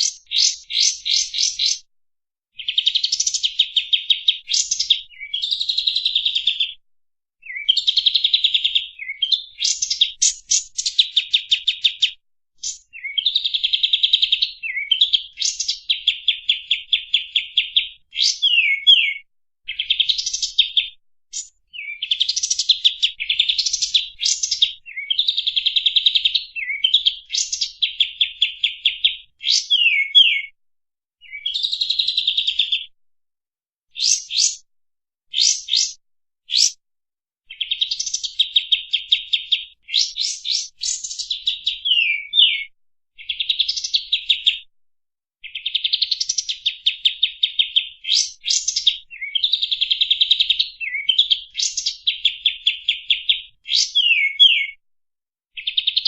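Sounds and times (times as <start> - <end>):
songbird trilling: 0.0 - 1.8, 17.2 - 30.5, 34.0 - 34.6, 35.3 - 36.8, 39.1 - 42.7, 52.7 - 54.8.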